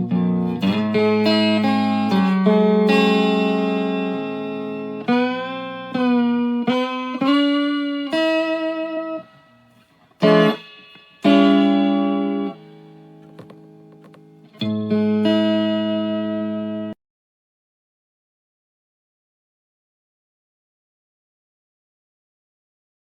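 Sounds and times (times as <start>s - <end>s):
electric guitar strummed chords: 0.0s - 17.0s.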